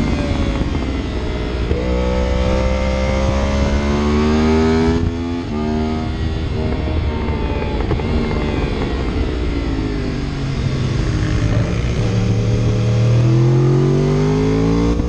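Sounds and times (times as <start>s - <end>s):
vehicle engine accelerating: 0.0s - 15.0s
wind and road noise: 0.0s - 15.0s.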